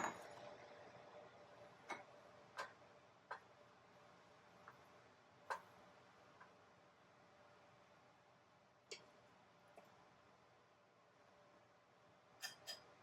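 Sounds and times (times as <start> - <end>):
faint clicks and taps: 1.8 - 3.6, 4.6 - 5.7, 8.8 - 10.0.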